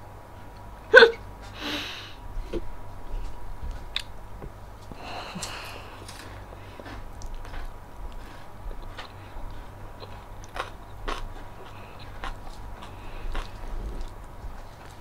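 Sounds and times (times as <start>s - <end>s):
person chewing crunchy food: 4.8s - 15.0s.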